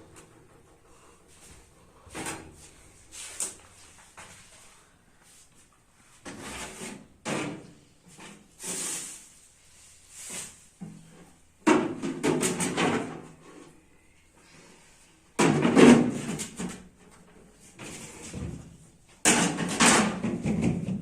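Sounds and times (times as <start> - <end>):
knocks and sliding clatters: 0.0 - 4.7.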